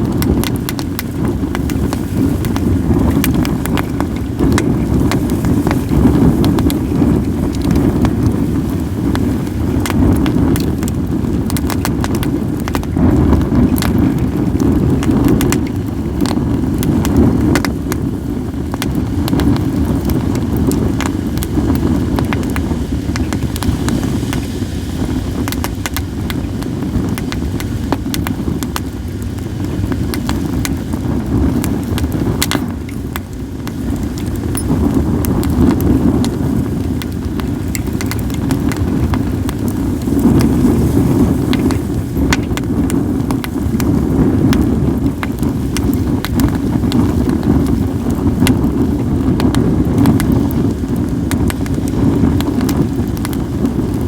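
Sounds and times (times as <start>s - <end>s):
fire pops and snaps: 0.0s - 54.0s
wind rumble on microphone: 0.0s - 54.0s
wood fire crackling: 0.0s - 54.0s.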